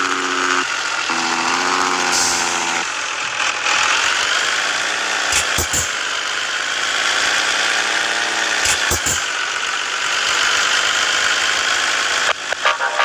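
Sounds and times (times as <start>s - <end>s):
diesel truck engine running: 0.0s - 13.0s
short clicks: 5.3s - 5.9s, 8.6s - 9.3s.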